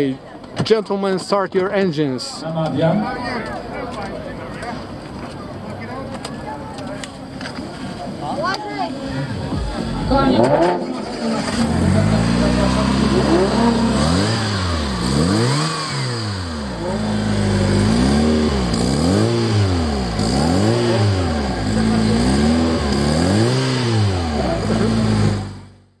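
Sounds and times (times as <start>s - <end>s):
car engine revving and idling: 8.9s - 26.0s.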